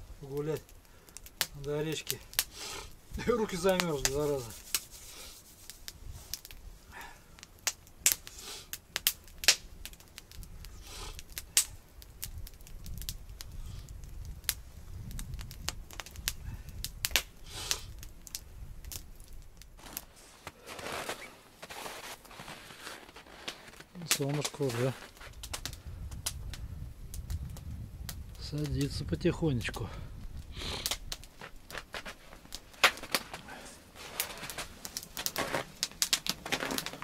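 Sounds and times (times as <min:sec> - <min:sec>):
campfire crackling and popping: 0:00.0 - 0:37.0
low rumble of flames: 0:00.0 - 0:37.0.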